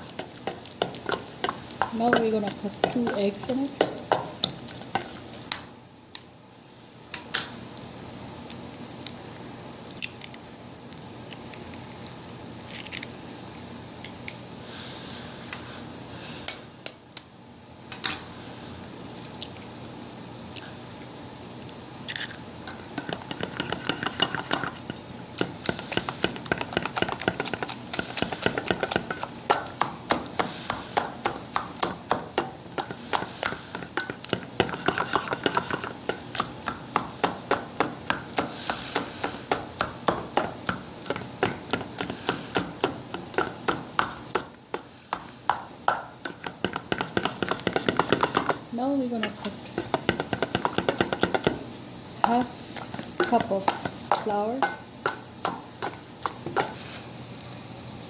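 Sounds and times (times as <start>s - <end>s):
utensil beating batter in a bowl: 0.0s - 5.7s, 22.6s - 57.0s
knocks and taps on a mixing bowl: 49.8s - 51.6s.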